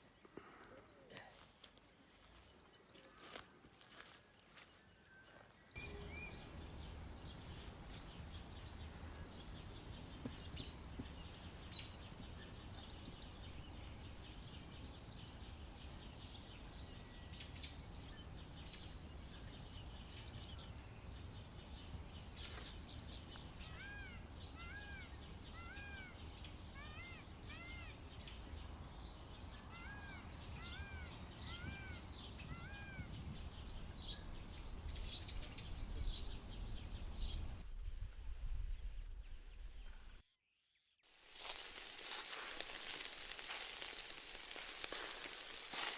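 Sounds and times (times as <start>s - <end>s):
faint chirps: 5.8s - 23.8s.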